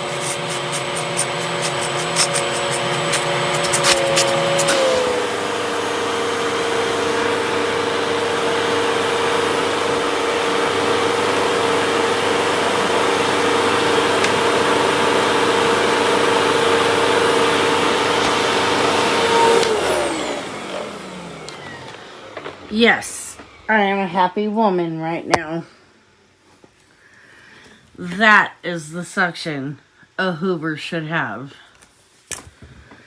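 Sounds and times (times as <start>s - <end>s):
vacuum cleaner motor whining: 0.0s - 23.7s.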